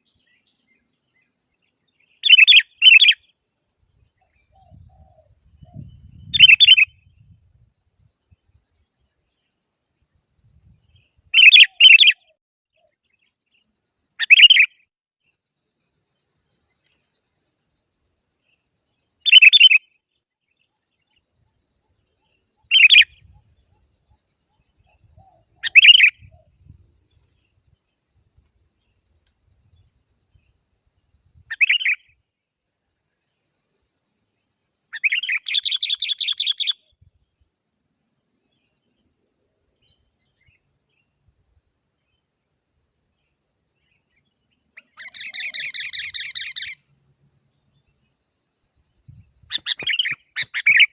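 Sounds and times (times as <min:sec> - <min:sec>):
bulbul calling: 0:02.0 - 0:03.3, 0:04.2 - 0:07.0, 0:11.3 - 0:13.0, 0:14.2 - 0:14.8, 0:19.2 - 0:19.9, 0:22.2 - 0:26.8, 0:31.5 - 0:32.2, 0:34.9 - 0:36.9, 0:43.8 - 0:46.8, 0:49.4 - 0:50.9
bird rapid chattering: 0:49.5 - 0:50.9.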